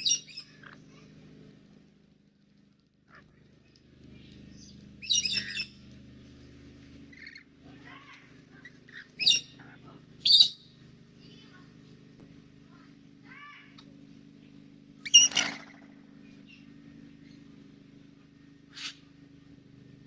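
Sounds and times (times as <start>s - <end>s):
soft bird chirps: 0.0s - 0.8s, 3.6s - 6.4s, 7.1s - 7.5s, 8.6s - 11.6s, 14.4s - 17.6s, 18.6s - 19.1s
birds harsh squawks: 0.0s - 1.1s, 4.2s - 5.9s, 7.0s - 11.6s, 15.0s - 17.4s, 18.6s - 19.2s.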